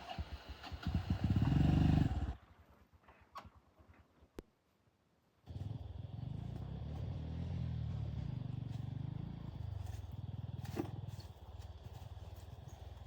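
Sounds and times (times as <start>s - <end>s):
small engine running: 5.5s - 13.0s.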